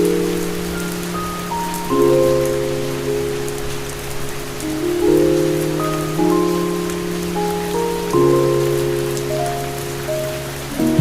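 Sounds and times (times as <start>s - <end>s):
rain pattering: 0.0s - 11.0s.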